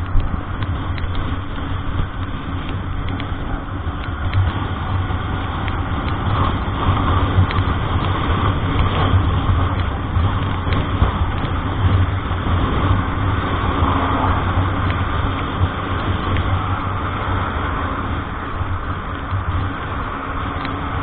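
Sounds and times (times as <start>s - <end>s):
road noise: 0.0s - 21.0s
vehicle engine hum: 0.0s - 21.0s.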